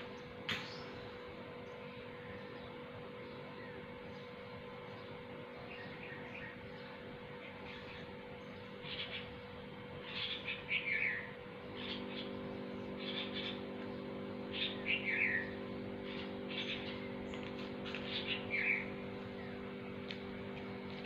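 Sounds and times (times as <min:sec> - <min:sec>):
low electrical hum: 0:00.0 - 0:21.0
bird chirping calls: 0:10.0 - 0:13.7, 0:14.5 - 0:19.6.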